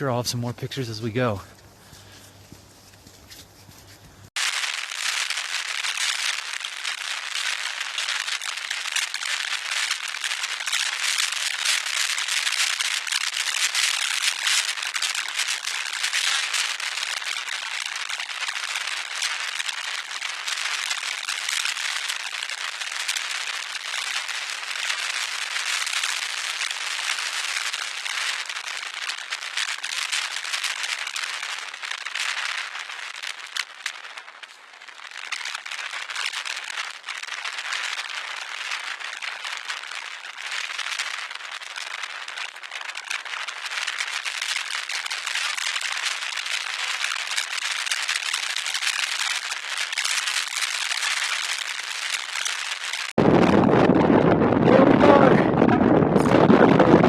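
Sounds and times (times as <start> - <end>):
wind buffeting microphone: 53.2 - 57.0.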